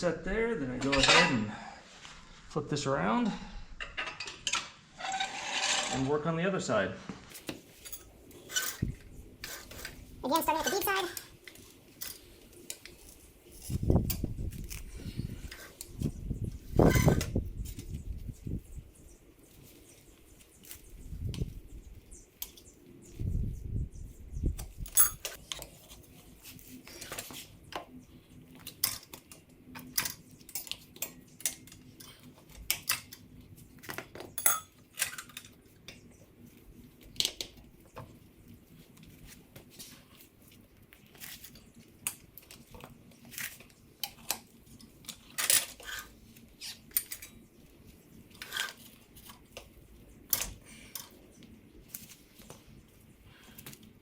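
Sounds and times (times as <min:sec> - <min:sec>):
tire tools clinking on wheel rim: 0:24.8 - 0:25.4, 0:34.4 - 0:35.4.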